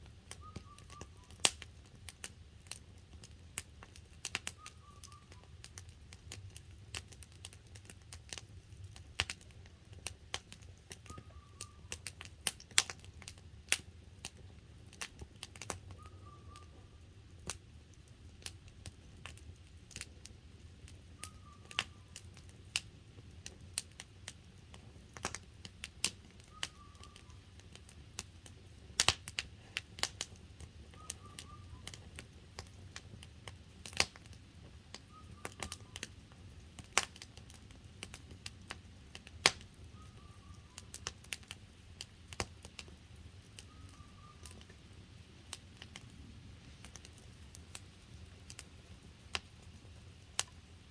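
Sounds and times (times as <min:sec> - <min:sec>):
campfire crackling and popping: 0:00.0 - 0:50.9.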